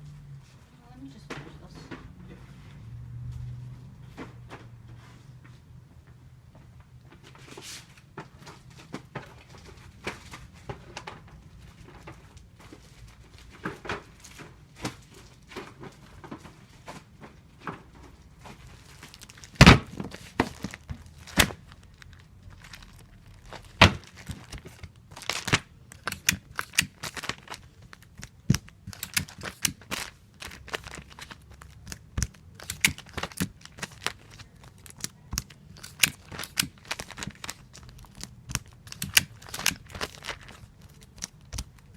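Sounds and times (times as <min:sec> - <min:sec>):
tape tearing off dispenser: 0:19.2 - 0:21.7, 0:23.4 - 0:41.9.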